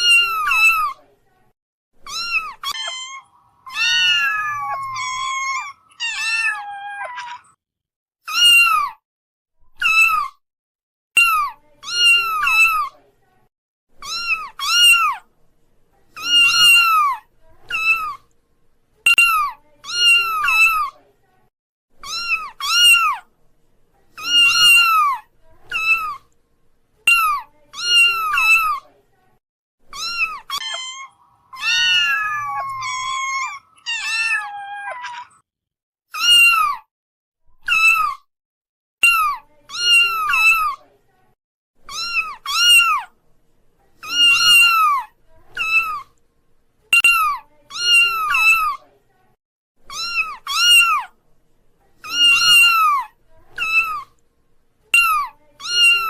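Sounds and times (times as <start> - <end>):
kitten meowing: 2.1 - 7.6, 8.3 - 9.0, 14.0 - 15.2, 16.2 - 18.2, 22.0 - 23.2, 24.2 - 26.2, 29.9 - 35.4, 36.2 - 36.9, 41.9 - 43.1, 49.9 - 51.1, 52.0 - 54.0.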